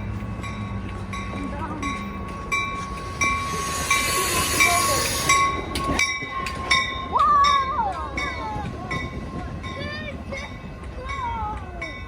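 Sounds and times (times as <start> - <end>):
crossing bell ringing: 0.0 - 12.0
train rolling past: 0.0 - 12.0
burst of hiss: 3.3 - 5.6.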